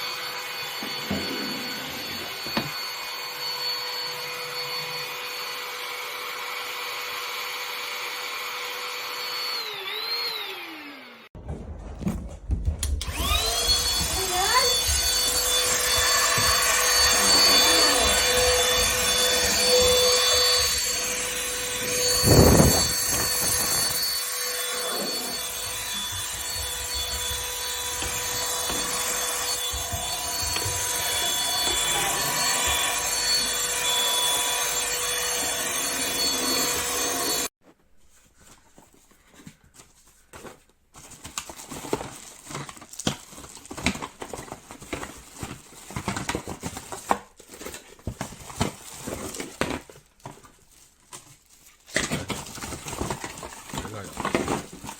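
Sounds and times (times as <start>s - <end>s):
vacuum cleaner motor whining: 0.0s - 11.3s, 12.8s - 37.5s.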